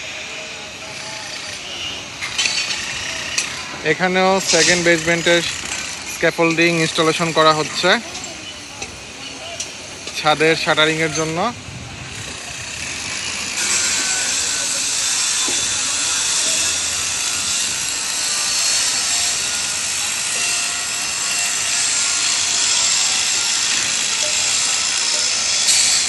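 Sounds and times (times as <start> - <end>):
loud tool hiss: 0.0 - 26.0.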